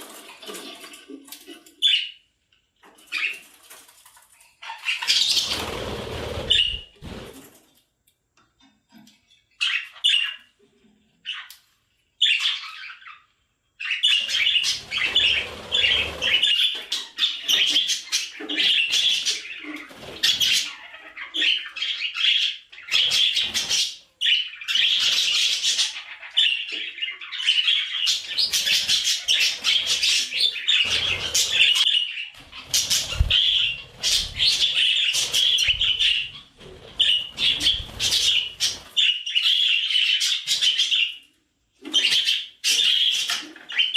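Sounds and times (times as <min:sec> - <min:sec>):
budgerigars chattering: 0:13.9 - 0:41.1.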